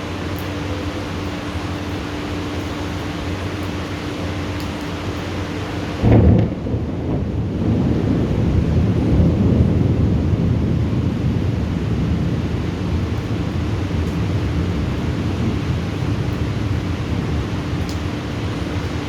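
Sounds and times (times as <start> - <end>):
thunder rolling: 6.0 - 17.5.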